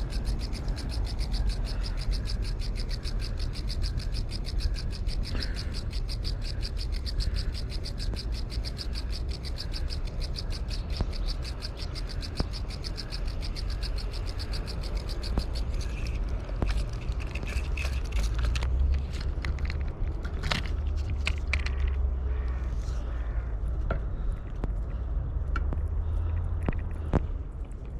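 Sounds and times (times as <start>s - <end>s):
insect chirping: 0.0s - 18.6s
clicks and scrapes: 0.0s - 22.1s.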